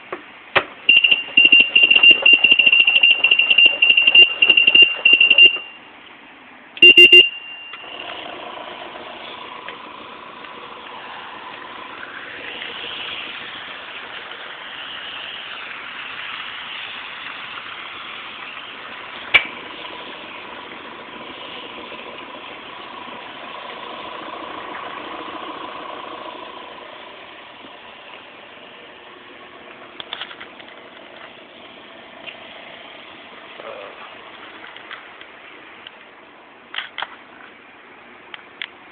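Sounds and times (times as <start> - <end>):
high beep: 0.9 - 5.9, 6.8 - 8.0.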